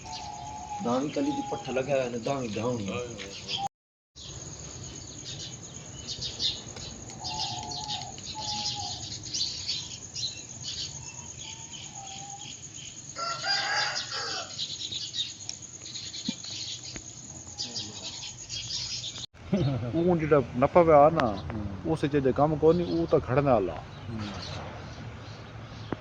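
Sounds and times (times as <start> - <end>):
high insect whine: 0.0 - 3.6, 4.2 - 19.3
small birds chirping: 0.0 - 26.0
rooster crowing: 13.1 - 14.8.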